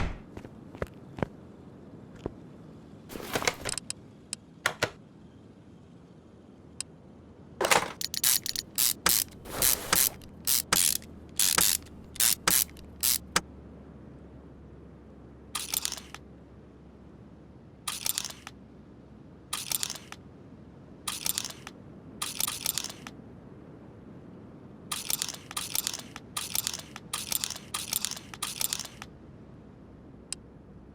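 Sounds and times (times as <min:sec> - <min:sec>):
mechanical clicking and rattling: 0:03.1 - 0:03.9, 0:07.6 - 0:13.4, 0:15.6 - 0:16.2, 0:17.9 - 0:18.6, 0:19.5 - 0:20.2, 0:21.1 - 0:23.1, 0:24.9 - 0:29.1.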